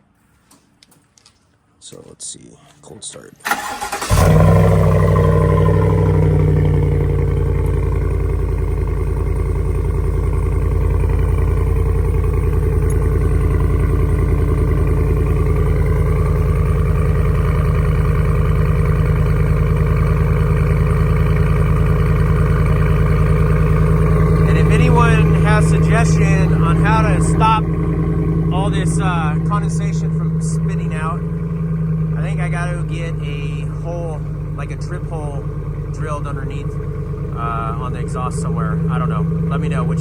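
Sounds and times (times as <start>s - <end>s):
truck engine idling: 2.8s - 40.0s.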